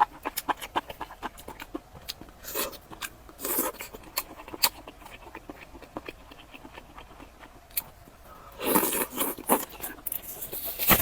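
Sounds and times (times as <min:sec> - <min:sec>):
chewing with wet mouth clicks: 0:00.0 - 0:08.0.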